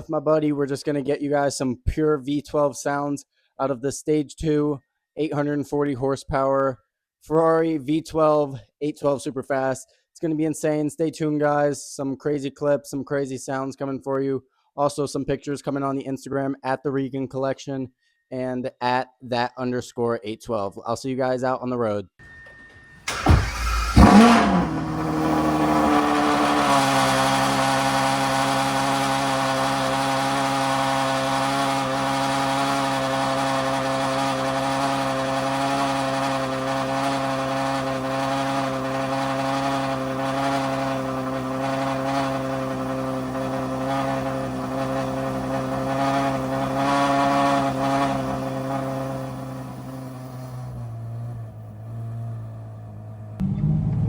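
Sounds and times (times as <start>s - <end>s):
car engine starting and idling: 22.2s - 54.0s.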